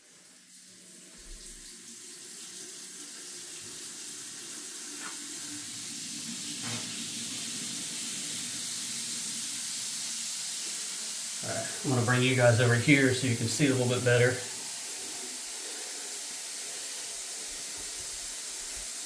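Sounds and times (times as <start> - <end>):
water rushing through shower: 0.0 - 19.0
faint water spits: 4.7 - 9.2.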